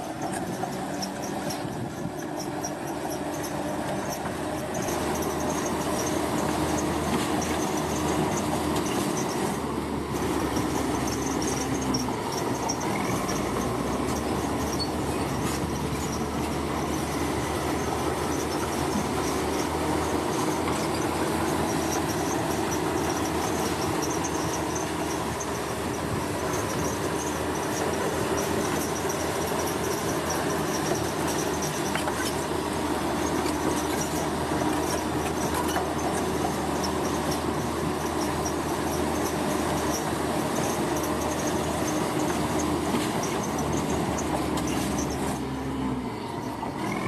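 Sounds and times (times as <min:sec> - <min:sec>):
heavy diesel machinery running: 0:00.0 - 0:47.0.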